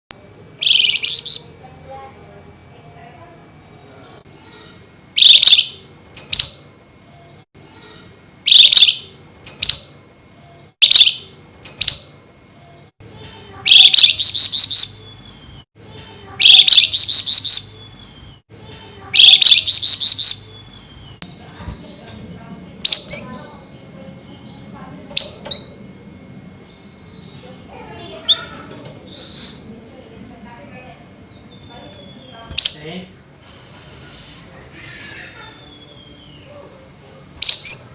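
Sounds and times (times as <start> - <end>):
songbird shrill harsh calls: 0.6 - 1.6, 5.2 - 5.8, 8.5 - 10.0, 10.8 - 12.2, 13.6 - 15.2, 16.4 - 18.1, 19.1 - 21.2.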